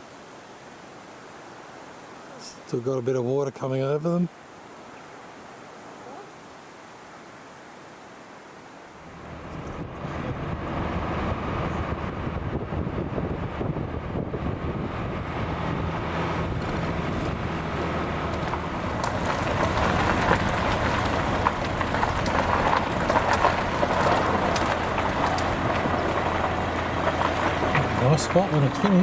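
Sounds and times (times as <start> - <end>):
crackling wind gusts: 4.3 - 29.0
vehicle road noise: 9.0 - 29.0.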